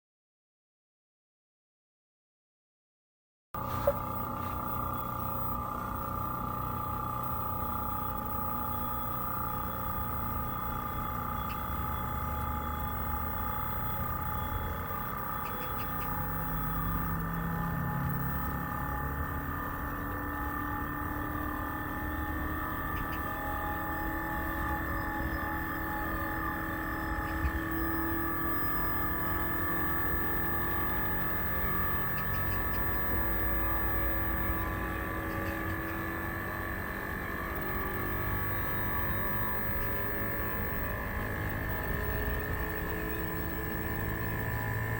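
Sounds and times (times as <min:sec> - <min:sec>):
air conditioner unit humming: 0:03.6 - 0:36.6.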